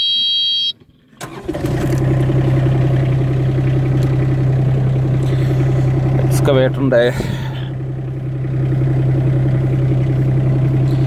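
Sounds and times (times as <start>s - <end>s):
electronic beep: 0.0s - 0.8s
diesel engine cranking and idling: 0.7s - 11.0s.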